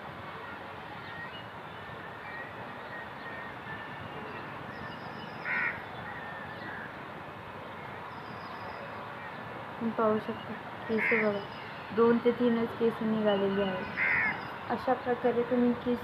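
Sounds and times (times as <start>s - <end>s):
steady background hiss: 0.0s - 16.0s
faint bird chirps: 0.4s - 6.9s, 7.6s - 15.0s
loud bird call: 0.4s - 7.0s, 10.4s - 12.0s, 13.7s - 14.7s.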